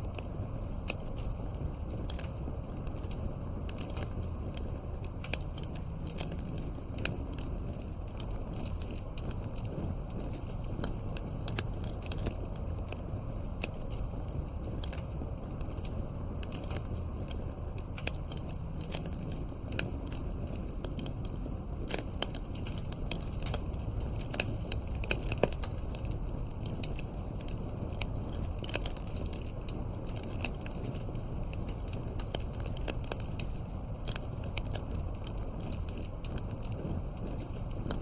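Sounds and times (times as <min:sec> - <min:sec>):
fire crackling and popping: 0:00.0 - 0:38.0
low rush of flame: 0:00.0 - 0:38.0.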